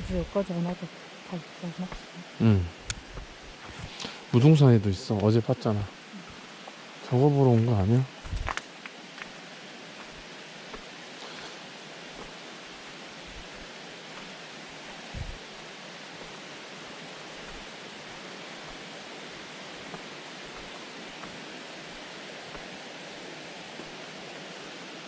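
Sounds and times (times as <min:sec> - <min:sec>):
steady rushing noise: 0:06.8 - 0:25.0.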